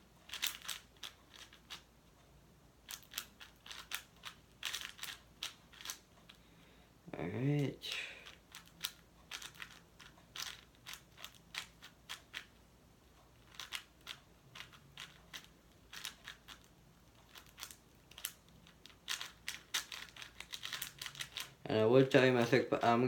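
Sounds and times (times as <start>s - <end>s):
speed cube clicking: 0.3s - 1.9s, 2.8s - 6.1s, 8.2s - 12.6s, 13.3s - 21.5s.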